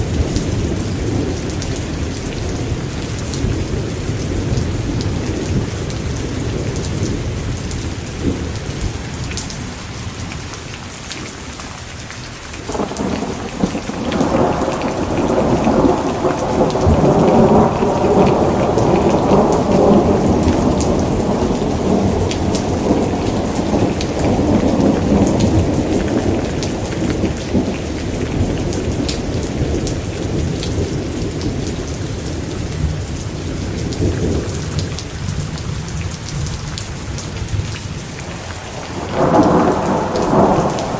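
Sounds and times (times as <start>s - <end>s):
steady rain: 0.0s - 40.9s
rolling thunder: 12.7s - 36.6s, 37.4s - 40.9s.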